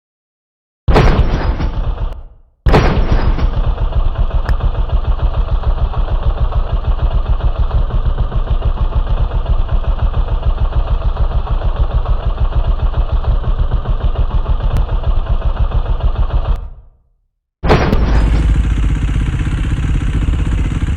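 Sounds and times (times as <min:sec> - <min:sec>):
motorcycle engine idling: 0:03.9 - 0:16.7, 0:18.2 - 0:20.9.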